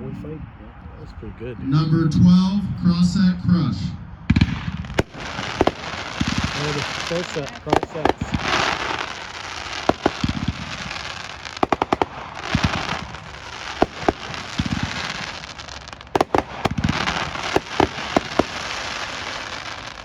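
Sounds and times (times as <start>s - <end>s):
firework shells cracking: 4.4s - 20.0s
fireworks hissing: 4.4s - 20.0s.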